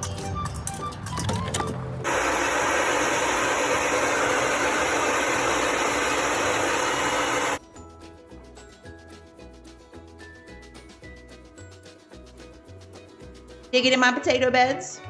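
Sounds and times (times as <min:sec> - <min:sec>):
loud steady machine noise: 0:02.0 - 0:07.6.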